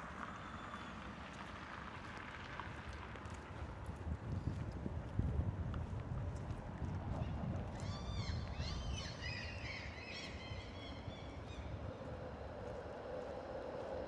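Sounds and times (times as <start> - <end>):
low city rumble: 0.0 - 14.0.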